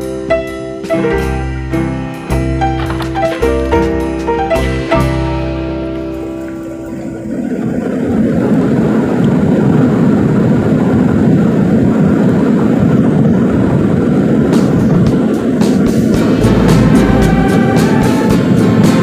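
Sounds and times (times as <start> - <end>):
held piano chord: 0.0 - 7.6, 16.1 - 19.0
airliner rushing noise: 0.0 - 19.0.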